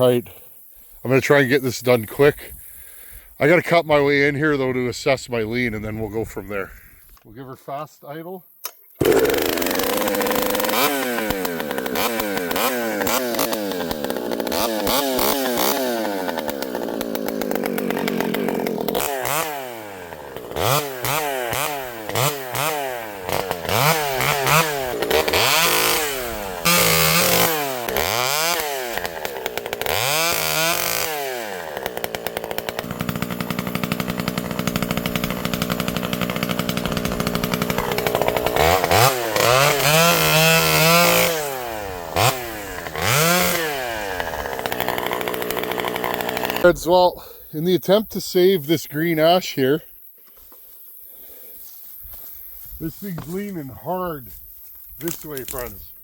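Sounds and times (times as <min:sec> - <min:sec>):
two-stroke chainsaw revving: 0:09.0 - 0:46.9, 0:55.0 - 0:55.7.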